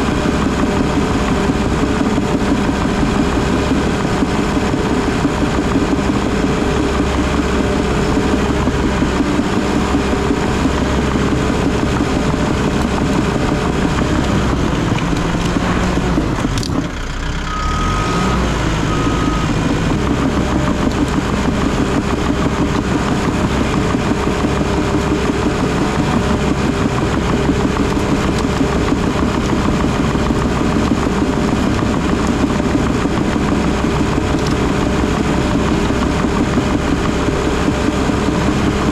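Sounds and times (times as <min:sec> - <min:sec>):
diesel engine running: 0:00.0 - 0:38.9
short beeps: 0:17.5 - 0:19.6.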